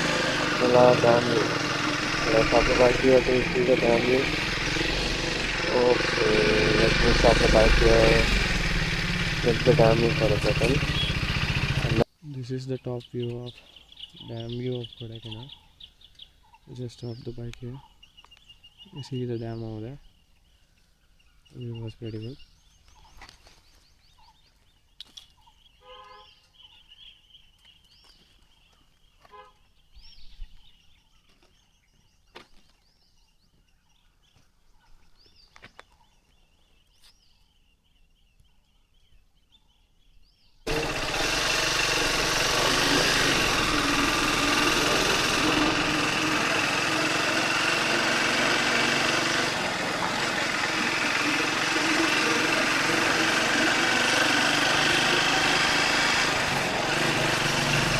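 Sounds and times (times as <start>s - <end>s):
motorcycle engine running: 0.0s - 12.1s, 40.7s - 57.9s
bird calls: 0.0s - 57.9s.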